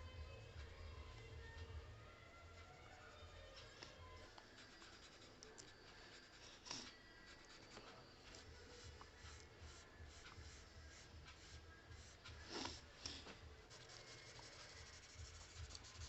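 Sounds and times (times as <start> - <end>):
pencil scratching on paper: 4.4 - 16.0.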